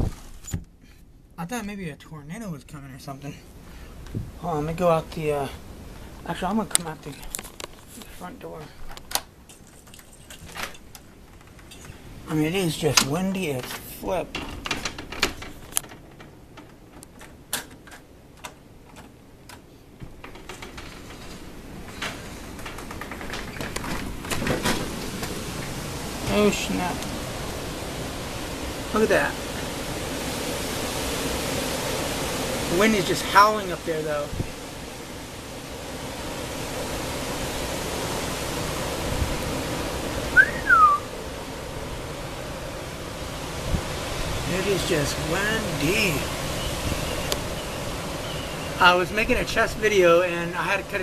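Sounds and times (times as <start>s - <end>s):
strong wind howling: 0.0s - 0.3s, 3.4s - 51.0s
short rising whistle: 40.4s - 41.1s.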